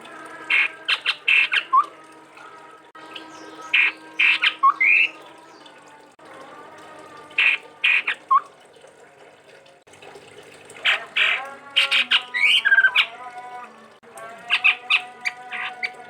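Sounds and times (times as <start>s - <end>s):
bird harsh chattering calls: 0.5s - 1.8s, 3.7s - 5.1s, 7.4s - 8.3s.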